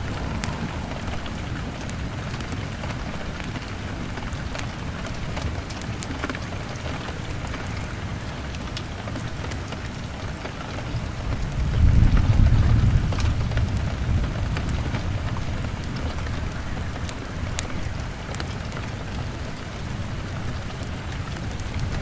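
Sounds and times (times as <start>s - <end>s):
low rumble: 0.0s - 3.4s
log fire crackling: 0.0s - 22.0s
rain on window glass: 0.0s - 22.0s.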